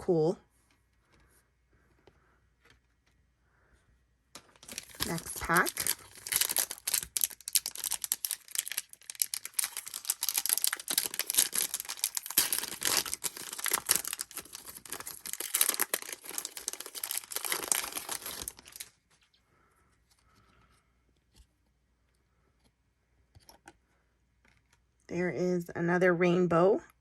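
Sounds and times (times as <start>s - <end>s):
card pack wrapper tearing: 4.6s - 18.9s.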